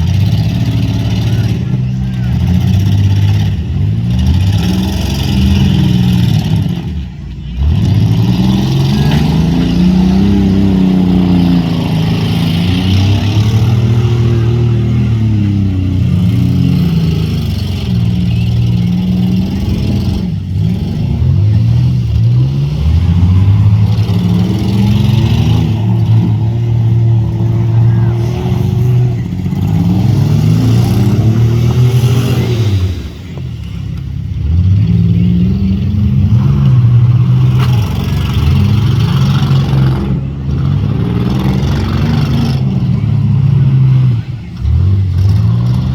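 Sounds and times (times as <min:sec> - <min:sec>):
car engines revving: 0:00.0 - 0:45.9.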